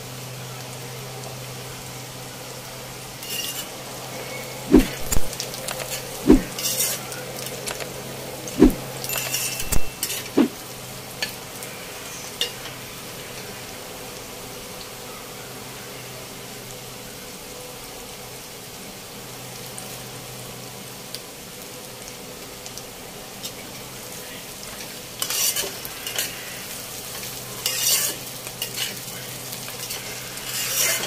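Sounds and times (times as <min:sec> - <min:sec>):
vegetables sizzling in oil: 0:00.0 - 0:31.0
low steady hum: 0:02.5 - 0:12.0
spatula scraping and knocking pan: 0:27.6 - 0:29.0, 0:29.8 - 0:31.0.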